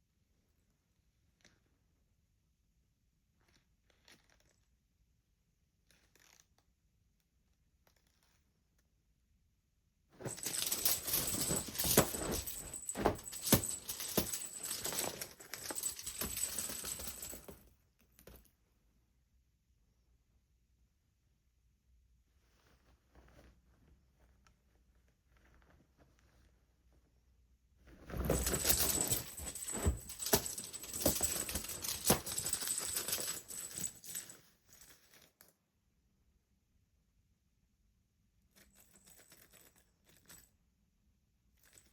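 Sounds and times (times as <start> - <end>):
cat toy rattling and jingling: 10.2 - 17.5, 28.1 - 34.3.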